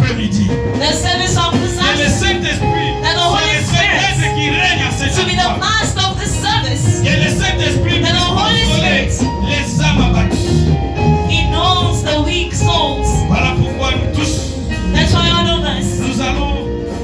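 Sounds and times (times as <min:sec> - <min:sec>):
person singing or praying: 0:00.0 - 0:16.8
bass line: 0:00.0 - 0:17.0
held keyboard chords: 0:00.0 - 0:17.0.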